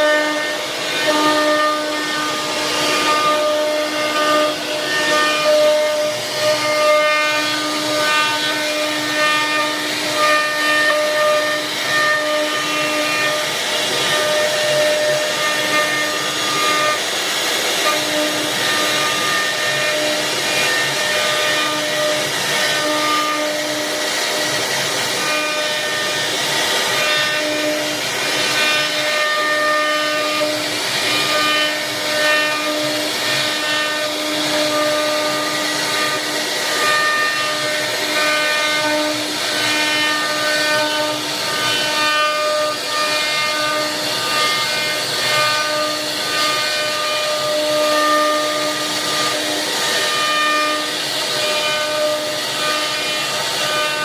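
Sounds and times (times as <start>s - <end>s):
cnc machine running: 0.0s - 54.0s.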